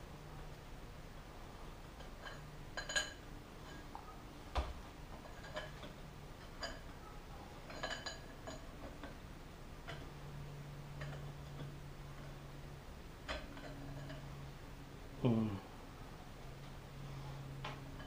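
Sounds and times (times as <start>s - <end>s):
light metallic clinks and taps: 7.7s - 9.2s.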